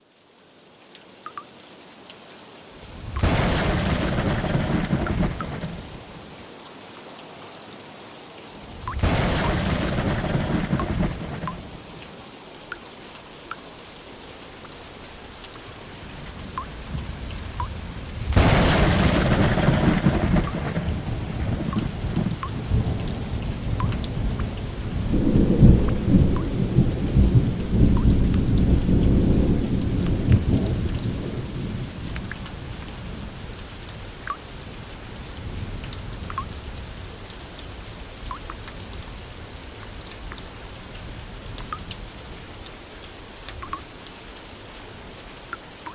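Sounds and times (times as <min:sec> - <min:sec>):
steady rain: 0:00.0 - 0:45.9
sharp thunderclap: 0:03.0 - 0:05.9, 0:08.9 - 0:11.7, 0:18.2 - 0:23.0
low thunder rumble: 0:03.0 - 0:06.1, 0:08.9 - 0:11.8, 0:16.3 - 0:33.4.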